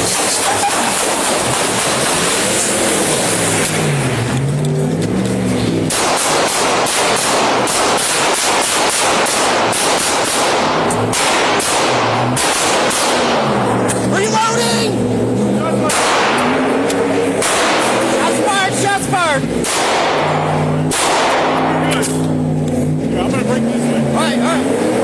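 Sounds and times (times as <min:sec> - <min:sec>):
vehicle engine running: 0:00.0 - 0:25.0
handgun shots: 0:05.9 - 0:13.5, 0:15.9 - 0:18.1, 0:19.6 - 0:22.2.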